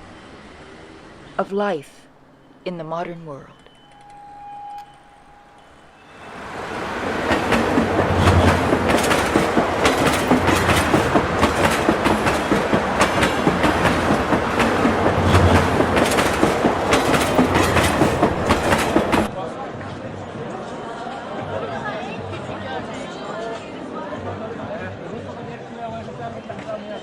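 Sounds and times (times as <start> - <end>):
train wheels clattering on rails: 6.5 - 19.3.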